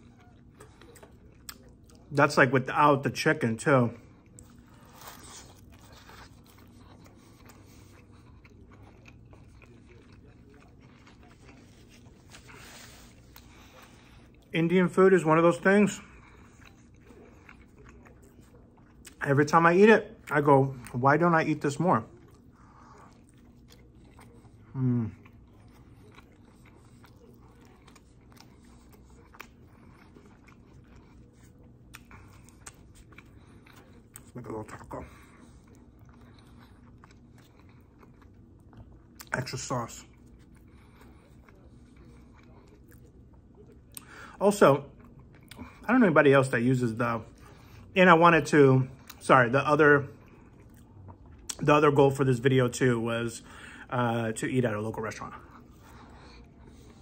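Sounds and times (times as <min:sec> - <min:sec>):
faint chewing and crunching: 0:00.0 - 0:57.0
voiced mmm: 0:22.2 - 0:26.4.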